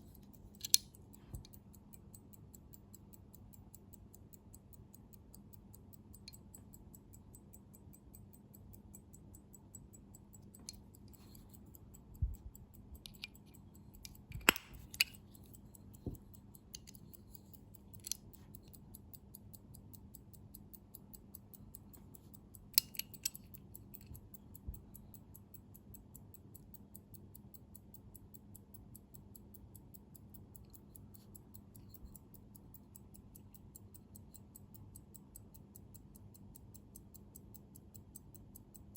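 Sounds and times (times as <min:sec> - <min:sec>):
pocket watch ticking: 0:00.0 - 0:38.9
handling clicks and taps: 0:13.0 - 0:18.8.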